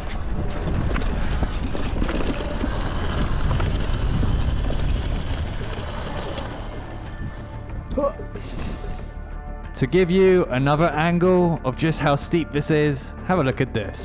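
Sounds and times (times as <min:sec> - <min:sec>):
wind noise on microphone: 0:00.0 - 0:09.2.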